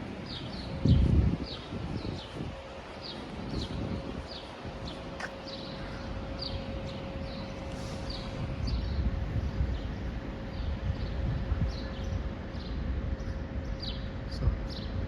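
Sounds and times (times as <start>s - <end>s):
small birds chirping: 3.0s - 14.1s.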